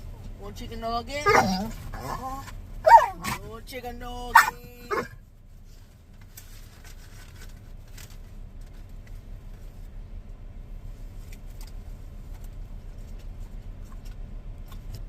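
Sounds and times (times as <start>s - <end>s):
steady low rumble: 0.0s - 6.2s.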